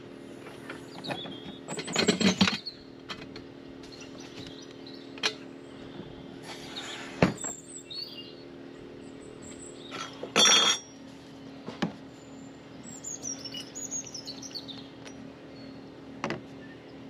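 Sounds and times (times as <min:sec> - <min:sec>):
steady low hum: 0:00.0 - 0:17.0
bird chirping: 0:06.7 - 0:08.4, 0:12.2 - 0:15.9.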